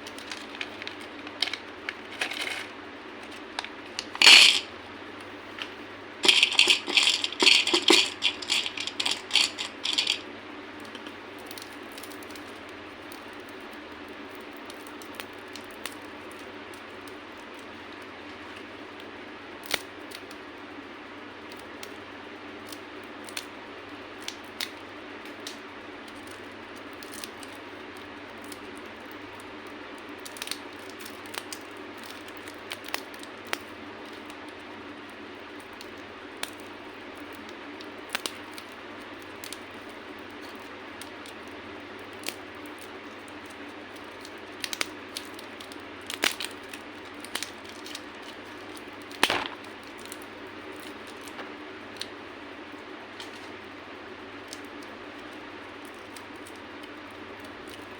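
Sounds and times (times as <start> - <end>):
candy cracking: 0.0 - 13.7, 42.1 - 52.2
steady background hiss: 0.0 - 57.9.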